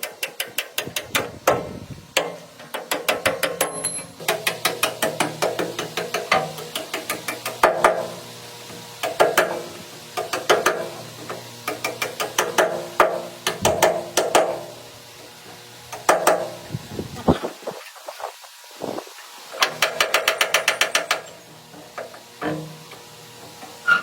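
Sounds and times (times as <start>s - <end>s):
rapid mechanical clicking: 0.0s - 8.2s, 9.0s - 14.6s, 19.5s - 21.4s.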